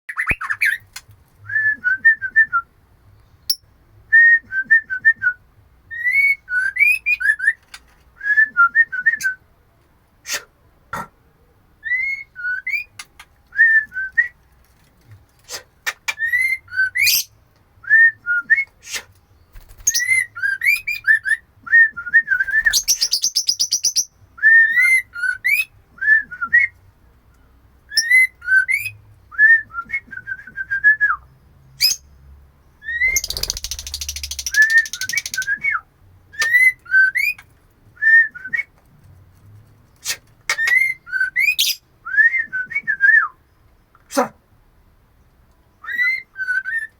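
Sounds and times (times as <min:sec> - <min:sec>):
bird whistled phrases: 0:00.1 - 0:00.8, 0:16.1 - 0:17.3, 0:22.2 - 0:26.4, 0:32.8 - 0:35.8, 0:40.0 - 0:43.4, 0:45.8 - 0:46.9
bird harsh chattering: 0:33.0 - 0:35.5.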